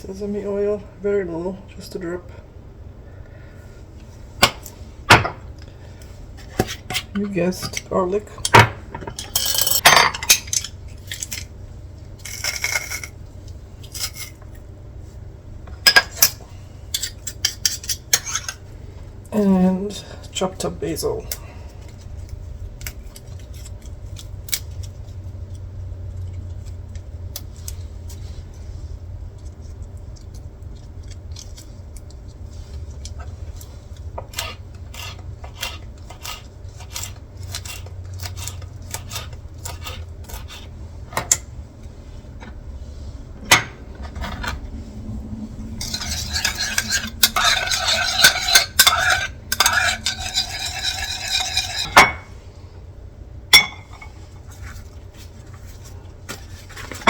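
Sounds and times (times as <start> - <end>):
low hum: 18.6 - 57.0.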